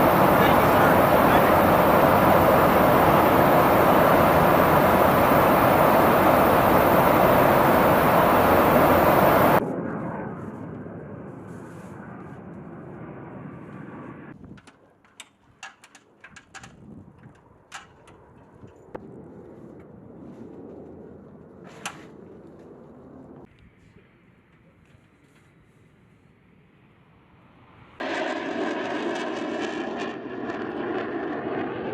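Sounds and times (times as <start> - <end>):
jet aircraft noise: 0.0 - 14.4, 27.6 - 31.9
sharp clicks and knocks: 14.6 - 18.2.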